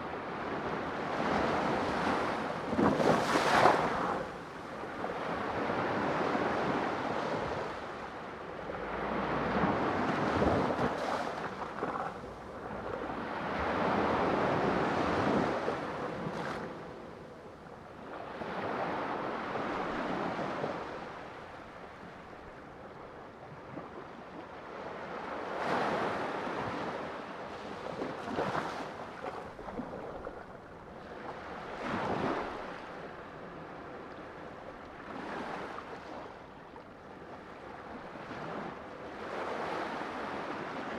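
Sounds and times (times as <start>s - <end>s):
sea waves breaking: 1.3s - 17.2s.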